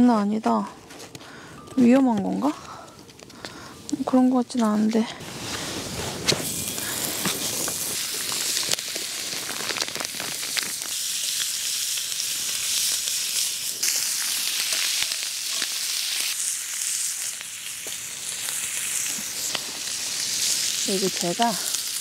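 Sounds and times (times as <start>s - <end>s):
firewood crackling: 0.0s - 22.0s
duck sizzling in a skillet: 6.3s - 22.0s.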